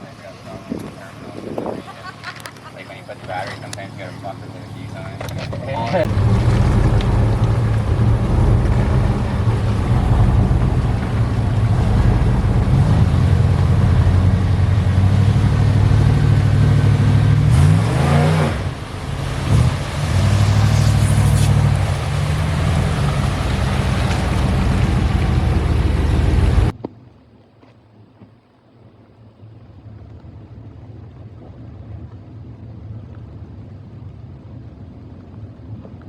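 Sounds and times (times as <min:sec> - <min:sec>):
off-road vehicle engine running: 0:00.0 - 0:26.8.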